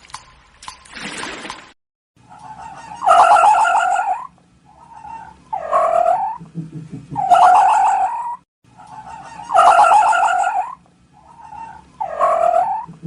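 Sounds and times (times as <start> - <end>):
farm animal calling: 2.3 - 6.4, 7.2 - 13.0.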